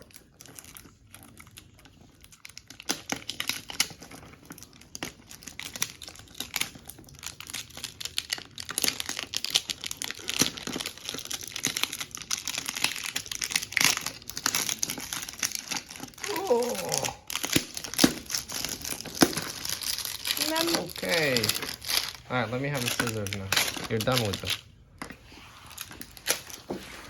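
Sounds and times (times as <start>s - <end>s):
packaging crinkling and tearing: 0.0s - 27.0s.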